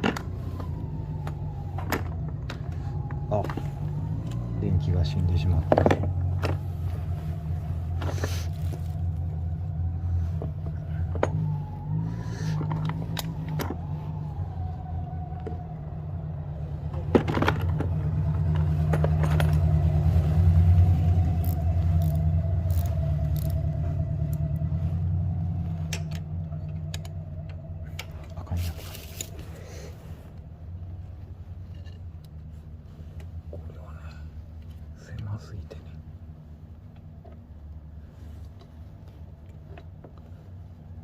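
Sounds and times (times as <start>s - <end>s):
engine idling: 0.0s - 30.4s.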